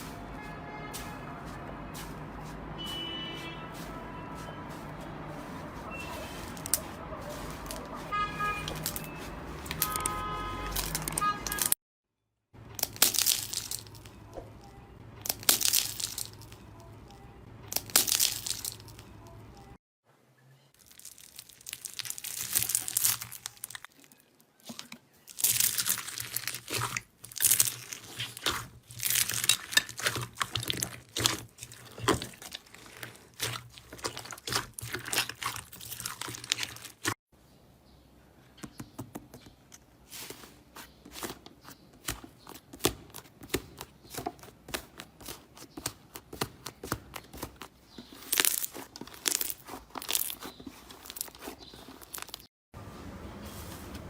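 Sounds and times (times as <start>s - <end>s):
slime squeezed by hand crackling: 20.8s - 24.0s, 24.7s - 37.2s.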